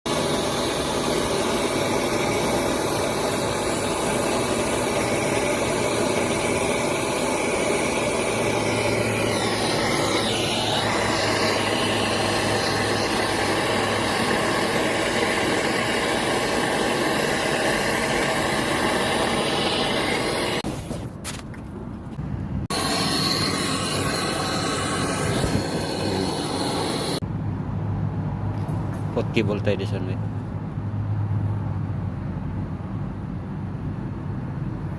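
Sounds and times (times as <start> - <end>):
machine humming with whining tones: 0.1 - 20.6, 22.7 - 27.2.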